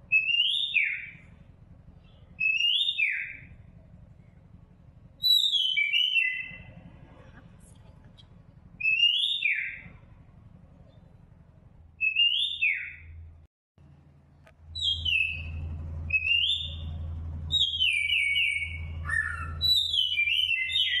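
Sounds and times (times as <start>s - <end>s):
low steady hum: 0.0s - 21.0s
high whistled bird calls: 0.1s - 1.3s, 2.0s - 3.6s, 5.2s - 6.8s, 8.8s - 10.0s, 12.0s - 13.2s, 14.7s - 21.0s.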